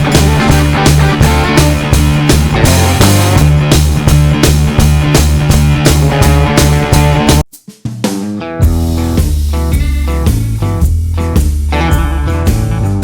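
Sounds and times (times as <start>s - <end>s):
rock music with drums: 0.0s - 13.0s.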